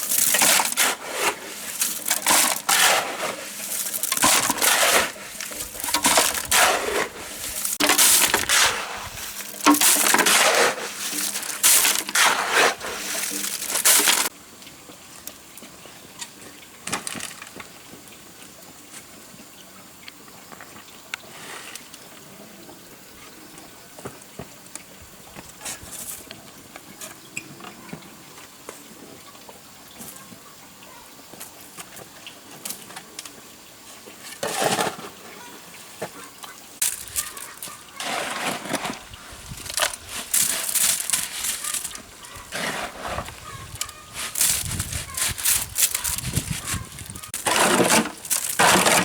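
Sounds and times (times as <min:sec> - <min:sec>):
rough crunching and scraping: 0:00.0 - 0:14.3, 0:34.3 - 0:49.0.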